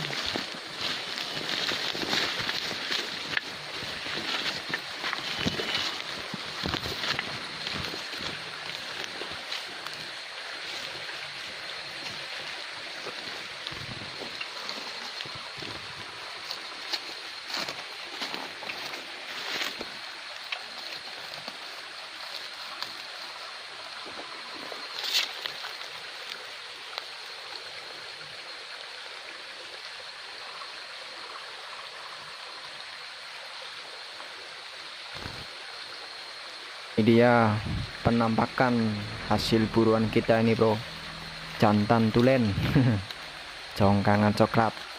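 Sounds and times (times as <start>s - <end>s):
stream rushing: 0.0s - 44.9s
thin high tone: 37.0s - 43.8s.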